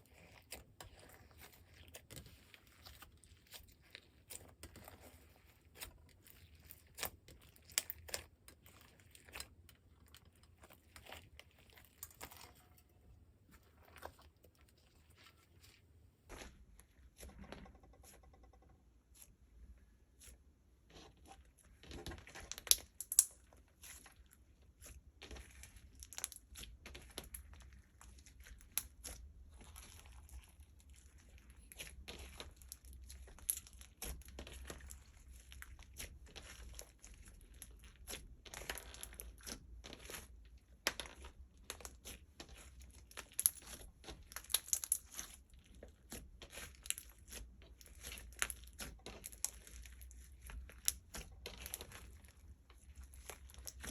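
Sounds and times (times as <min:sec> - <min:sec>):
slime crackling and popping: 0:21.9 - 0:24.2, 0:24.8 - 0:53.9.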